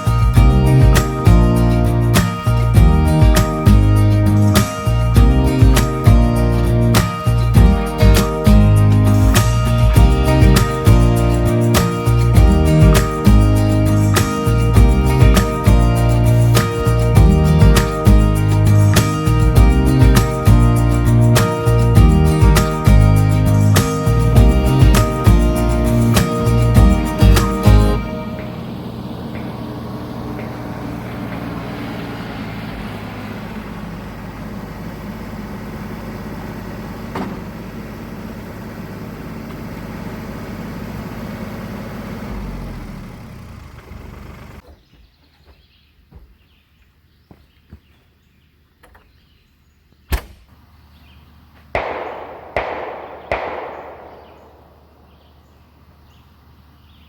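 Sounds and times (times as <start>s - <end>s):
tractor engine running: 0.0s - 44.6s, 51.7s - 57.0s
sharp bangs with echo: 51.8s - 55.7s.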